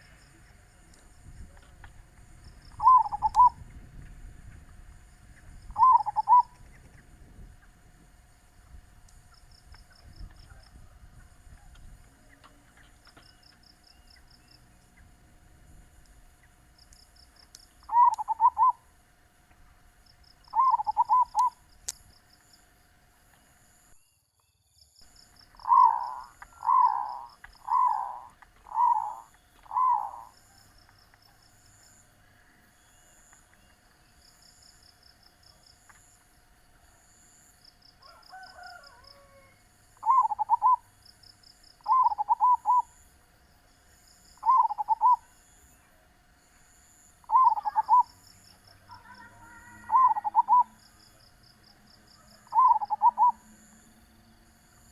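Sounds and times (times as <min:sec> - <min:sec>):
faint steady hum: 0:00.0 - 0:54.9
faint high chirping trills: 0:02.3 - 0:03.9, 0:05.1 - 0:07.8, 0:16.3 - 0:19.0, 0:19.8 - 0:54.9
dove cooing: 0:02.6 - 0:03.6, 0:05.7 - 0:06.6, 0:17.8 - 0:18.8, 0:20.5 - 0:21.6, 0:25.6 - 0:30.6, 0:38.0 - 0:40.9, 0:41.8 - 0:43.0, 0:44.4 - 0:45.3, 0:47.2 - 0:48.2, 0:48.9 - 0:50.8, 0:52.2 - 0:53.6.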